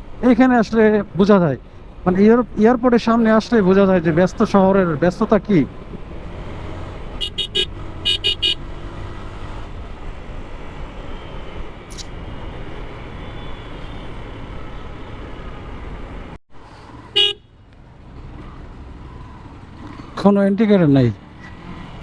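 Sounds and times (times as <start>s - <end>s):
busy road traffic: 0.0s - 22.0s
motorcycle rumble: 3.8s - 20.3s
vehicle horn toots: 7.2s - 8.6s, 17.1s - 17.5s.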